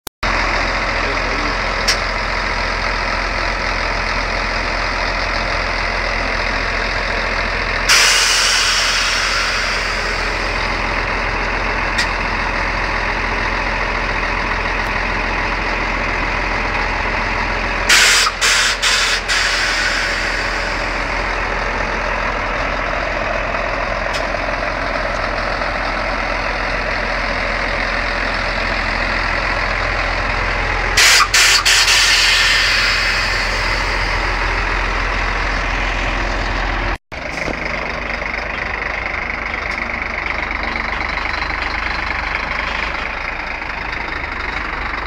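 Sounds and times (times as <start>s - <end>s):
truck engine running: 0.2s - 45.0s
compressed air hissing: 31.0s - 33.4s.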